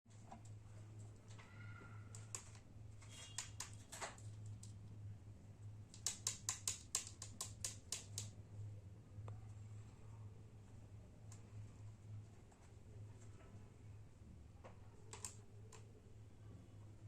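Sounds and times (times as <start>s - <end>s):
low electrical hum: 0.1s - 17.0s
sharp clicks of hard objects: 2.1s - 4.8s, 5.9s - 8.4s.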